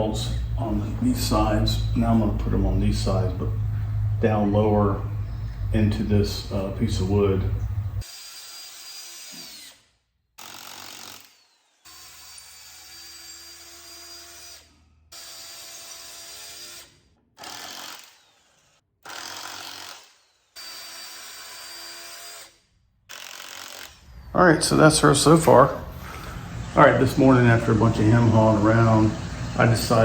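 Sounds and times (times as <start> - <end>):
power drill boring into wood: 8.0 - 24.2, 25.3 - 30.0.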